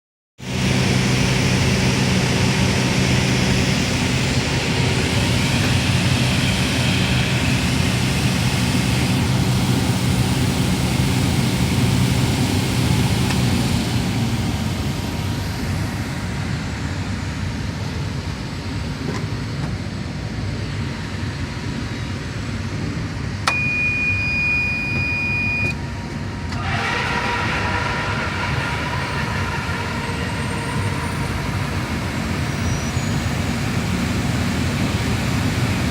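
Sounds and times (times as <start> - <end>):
machinery drone: 0.4 - 35.9
steady high tone: 23.5 - 34.8.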